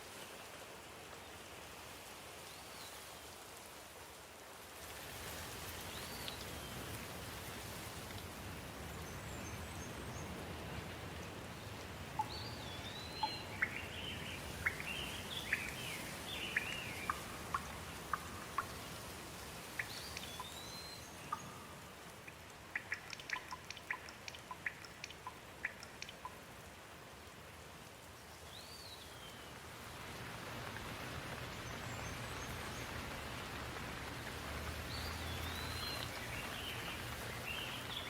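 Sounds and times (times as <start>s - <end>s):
steady rain: 0.0s - 38.0s
sharp drips ticking: 10.8s - 26.8s, 29.2s - 38.0s.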